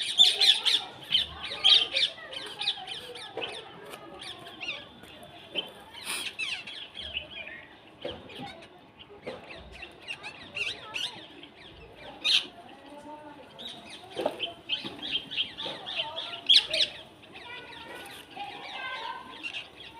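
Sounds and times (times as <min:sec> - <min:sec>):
birds chirping in chorus: 0:00.0 - 0:19.9.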